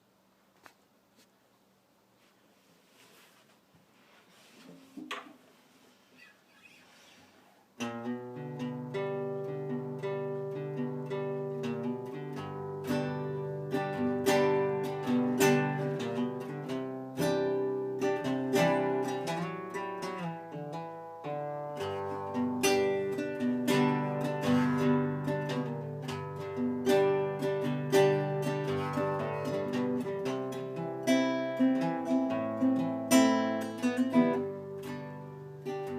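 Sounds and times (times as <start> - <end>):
plucked string instrument music: 7.8 - 35.9.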